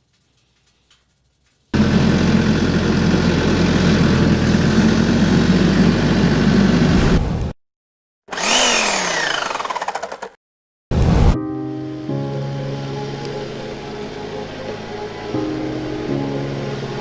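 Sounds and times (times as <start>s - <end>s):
engine running steadily: 1.8s - 7.0s.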